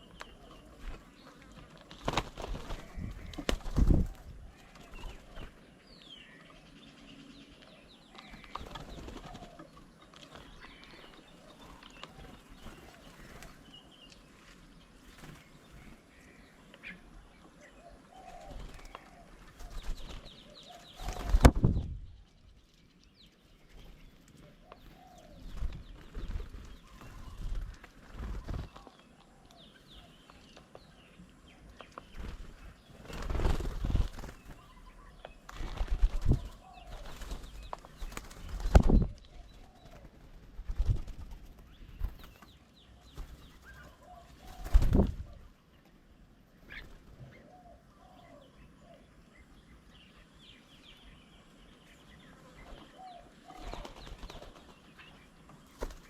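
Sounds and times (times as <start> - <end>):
doves cooing: 0.0 - 5.8, 6.6 - 14.3, 15.8 - 21.6, 24.3 - 42.3, 42.9 - 45.7, 46.6 - 49.5, 52.3 - 54.8
pigeons flapping wings: 0.8 - 5.6, 8.4 - 10.6, 18.4 - 21.8, 25.5 - 28.9, 32.1 - 34.7, 35.5 - 42.5, 44.4 - 45.2, 53.5 - 54.8, 55.7 - 56.0.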